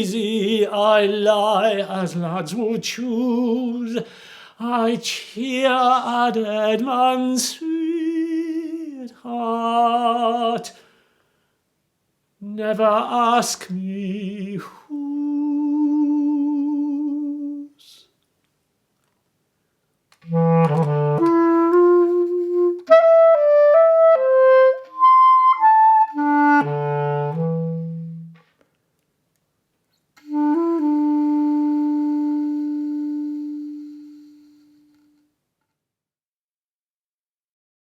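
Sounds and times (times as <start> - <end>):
solo clarinet: 20.2 - 28.5, 30.2 - 35.4.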